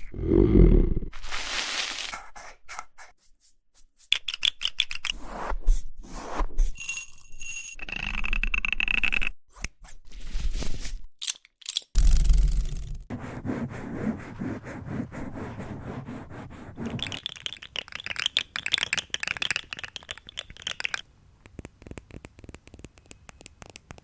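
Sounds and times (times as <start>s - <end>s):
scratching and crinkling: 1.2s - 2.2s.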